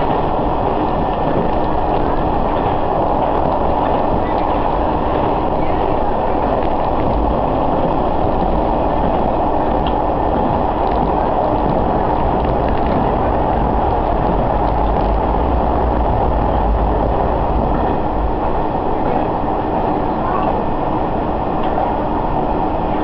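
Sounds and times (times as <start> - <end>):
railcar engine rumble: 0.0 - 23.0.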